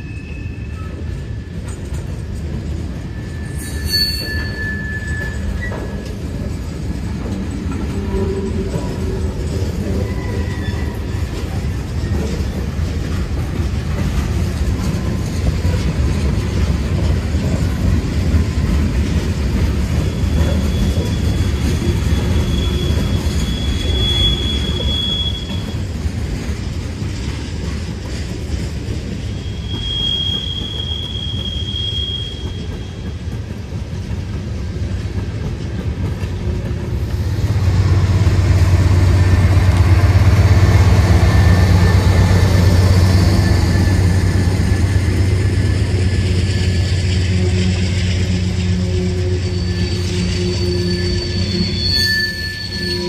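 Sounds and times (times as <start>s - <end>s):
high-pitched wheel squeals: 0.0s - 1.9s, 3.0s - 6.5s, 7.8s - 12.4s, 19.9s - 25.9s, 29.3s - 33.3s, 38.8s - 53.0s
diesel locomotive engine drone: 0.0s - 53.0s
train wheels rumbling on rails: 0.0s - 53.0s.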